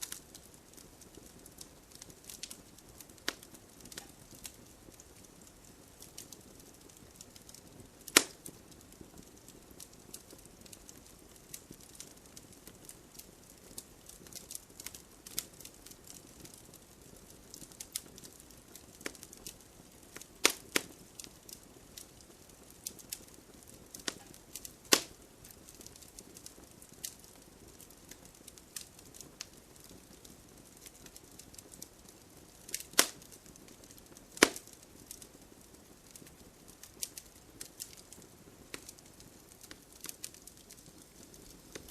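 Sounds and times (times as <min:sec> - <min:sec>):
sharp pops of fire: 0:00.0 - 0:41.9
wood fire crackling: 0:00.0 - 0:41.9
fire hissing: 0:17.4 - 0:31.5, 0:32.4 - 0:41.9.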